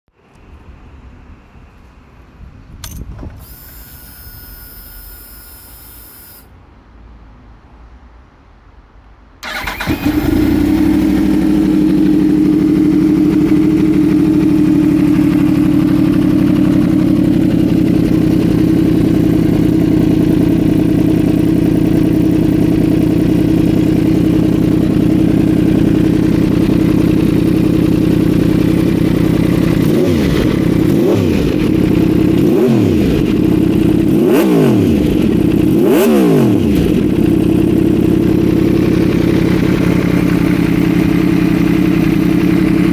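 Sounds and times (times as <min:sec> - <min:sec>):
motorcycle throttle blips: 0:02.8 - 0:06.5, 0:09.4 - 0:42.9
starter motor whir: 0:02.8 - 0:06.5, 0:09.4 - 0:11.4
motorcycle engine idling: 0:09.4 - 0:42.9.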